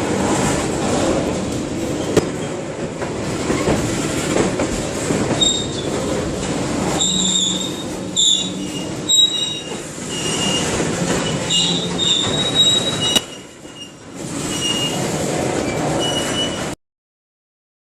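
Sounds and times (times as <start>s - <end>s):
train wheels rumbling on rails: 0.0s - 16.8s
high-pitched wheel squeal: 7.0s - 15.0s, 15.6s - 16.8s.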